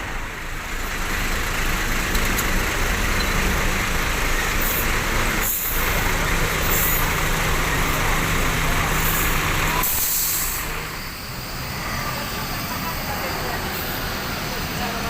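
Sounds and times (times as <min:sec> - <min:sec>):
bus engine running: 0:00.0 - 0:15.0
air brake hisses: 0:04.6 - 0:05.8, 0:09.0 - 0:10.7.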